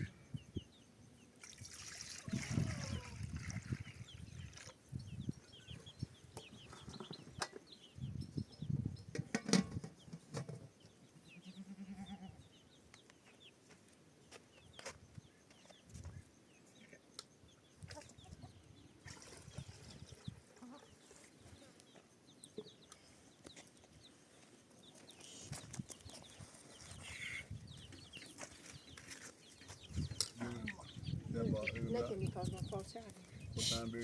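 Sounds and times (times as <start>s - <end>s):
knocks and rustles: 9.1s - 10.8s
low bleat: 11.4s - 12.4s.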